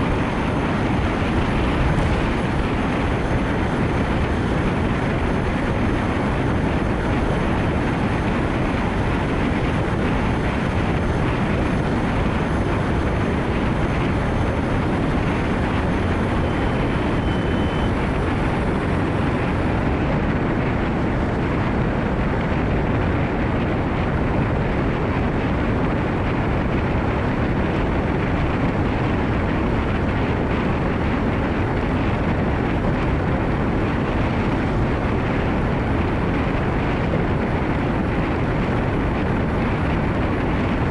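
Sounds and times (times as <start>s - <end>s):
tyres on a wet road: 0.0s - 25.4s
heavy rain: 0.0s - 40.9s
wind noise: 0.0s - 40.9s.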